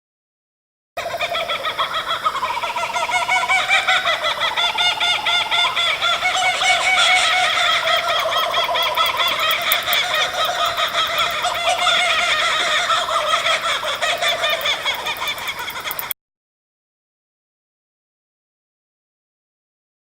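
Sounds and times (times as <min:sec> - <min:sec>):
birds chattering: 0:01.1 - 0:16.2.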